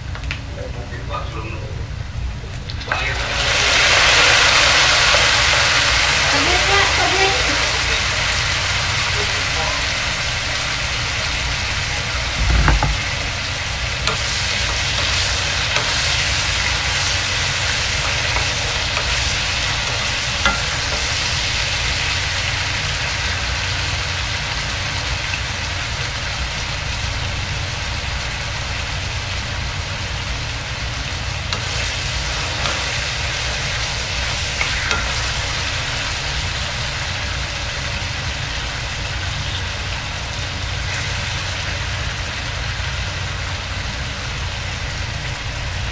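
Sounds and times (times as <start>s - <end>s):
vegetables sizzling in a wok: 2.0s - 45.9s
steady low hum: 11.2s - 23.0s
dull thump: 12.4s - 13.4s.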